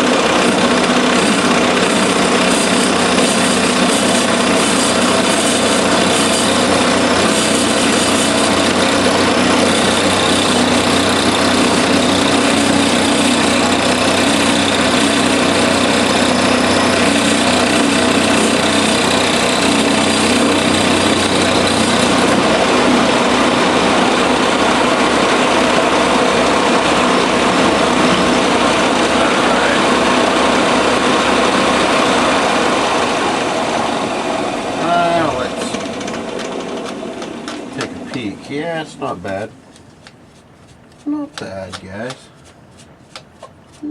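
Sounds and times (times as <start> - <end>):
milling cutter cutting steel: 0.0 - 22.7.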